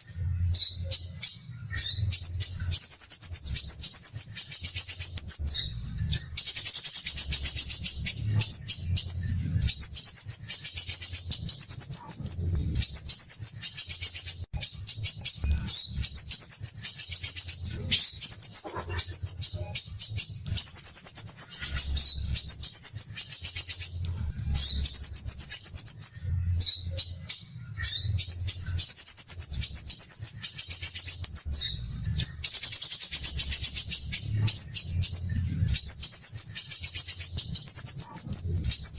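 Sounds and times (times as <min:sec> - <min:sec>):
faint low rumble: 0:11.1 - 0:13.3.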